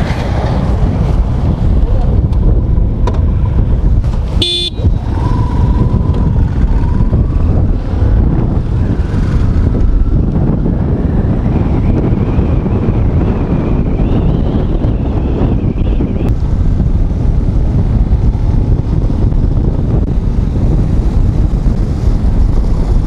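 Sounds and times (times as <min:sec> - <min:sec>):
wind buffeting microphone: 0:00.0 - 0:23.0
high horn toot: 0:04.4 - 0:05.0.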